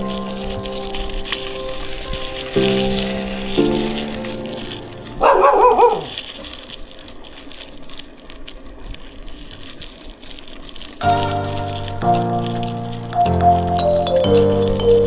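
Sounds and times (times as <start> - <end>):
dog yelping: 5.2 - 6.2.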